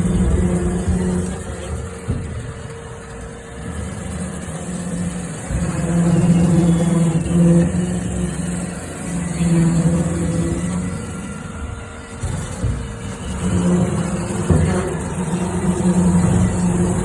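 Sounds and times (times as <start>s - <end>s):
robot vacuum motor hum: 0.0s - 17.0s.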